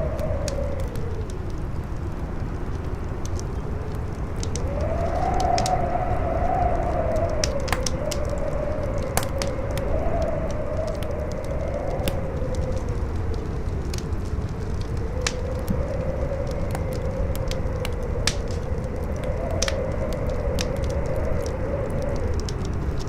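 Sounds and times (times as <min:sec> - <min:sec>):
campfire crackling: 0:00.0 - 0:23.0
strong wind howling: 0:00.0 - 0:23.0.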